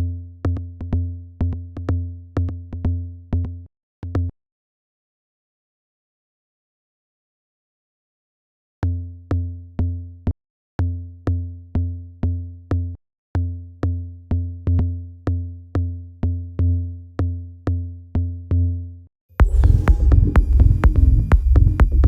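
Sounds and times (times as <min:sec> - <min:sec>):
electronic kick drum: 0:19.4 - 0:22.0.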